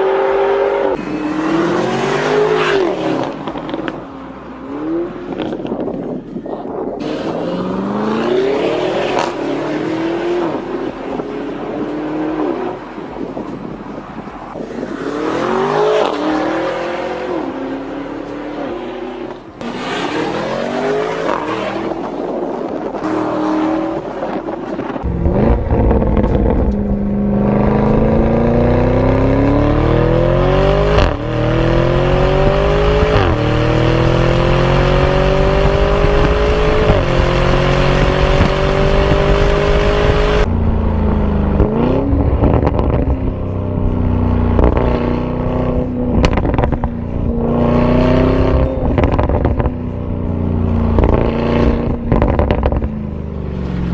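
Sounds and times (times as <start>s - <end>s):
car engine accelerating hard: 15.1s - 53.9s.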